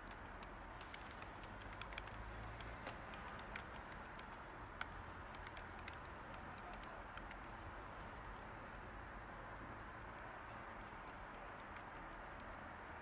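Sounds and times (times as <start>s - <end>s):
typing on a keyboard: 0.0s - 7.6s, 10.7s - 12.7s
steady white-noise hiss: 0.0s - 13.0s.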